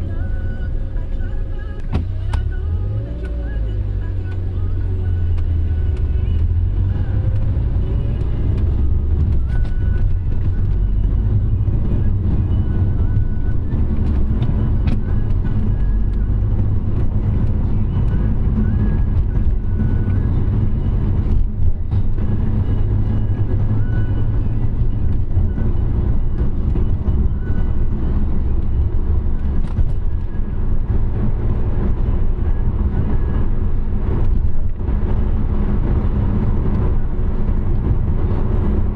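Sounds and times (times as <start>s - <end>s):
car engine: 0.0s - 38.9s
road rumble: 0.0s - 38.9s.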